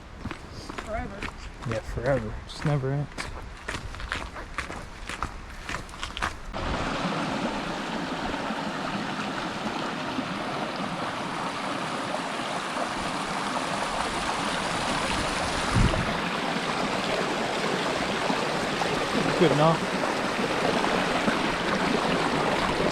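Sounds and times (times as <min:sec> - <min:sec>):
stream water rushing: 0:05.5 - 0:22.9.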